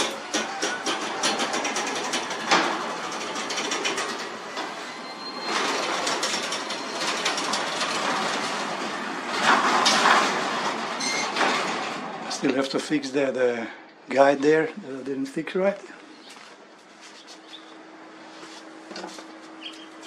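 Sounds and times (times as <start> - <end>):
garage door rumbling on tracks: 0.0 - 12.7.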